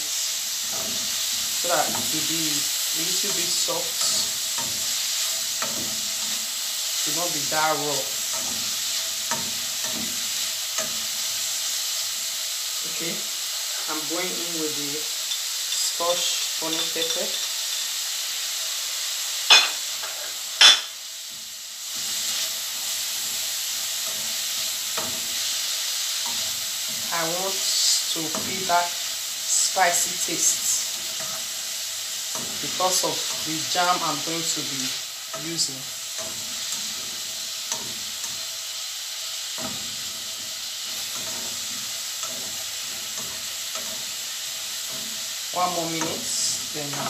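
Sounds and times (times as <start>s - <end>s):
vegetables sizzling in oil: 0.0s - 47.0s
spatula scraping pan: 39.4s - 47.0s.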